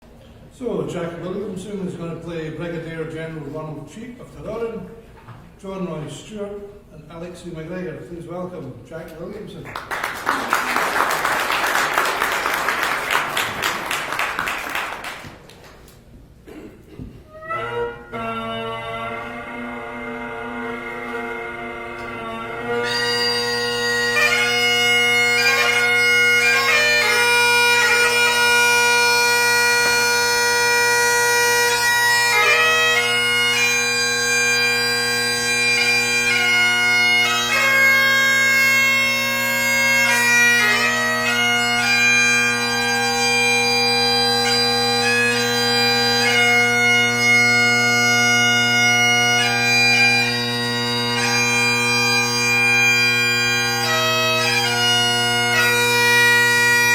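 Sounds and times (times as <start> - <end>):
bagpipe chanter melody: 17.3 - 56.9
bagpipe drones: 17.3 - 56.9.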